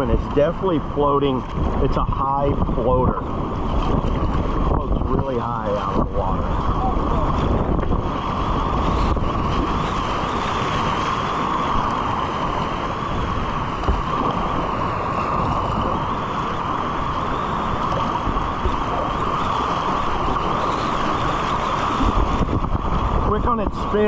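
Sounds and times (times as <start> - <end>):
river water rushing: 0.0 - 24.0
wind buffeting microphone: 0.0 - 24.0.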